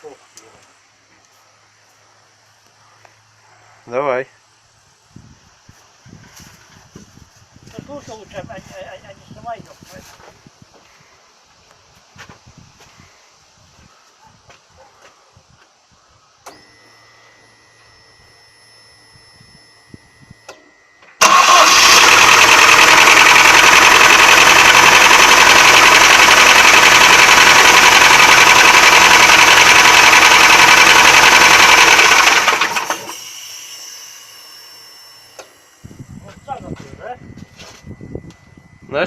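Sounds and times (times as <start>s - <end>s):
faint steady high tone: 16.0s - 21.2s, 32.9s - 39.0s
petrol engine starting and running: 20.4s - 36.6s
engine knocking: 21.2s - 33.2s.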